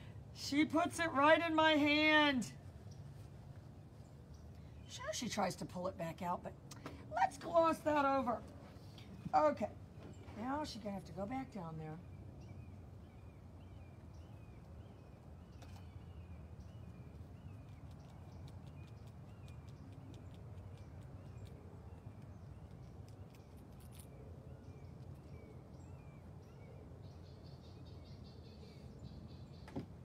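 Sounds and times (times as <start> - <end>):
bird chirping: 12.0 - 29.8.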